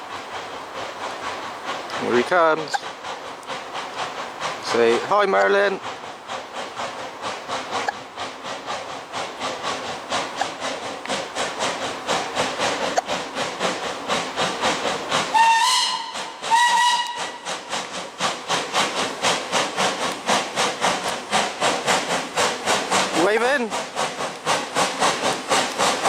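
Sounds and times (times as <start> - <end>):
steam locomotive chuffing: 0.0 - 26.0
locomotive whistle blasts: 15.3 - 17.4.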